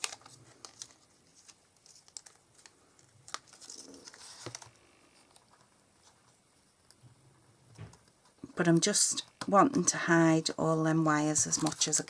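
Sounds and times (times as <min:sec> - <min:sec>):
paper rustling: 0:00.0 - 0:06.4, 0:11.2 - 0:12.0.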